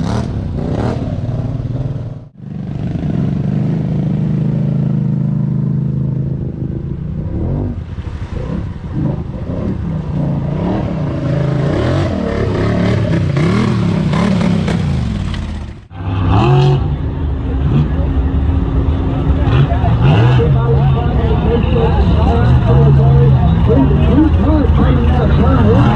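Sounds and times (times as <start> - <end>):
truck engine revving: 0.0 - 25.9.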